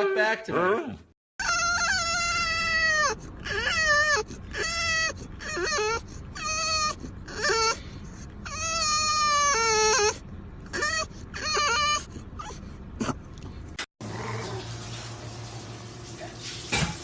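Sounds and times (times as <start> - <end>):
animal whining: 1.4 - 14.7.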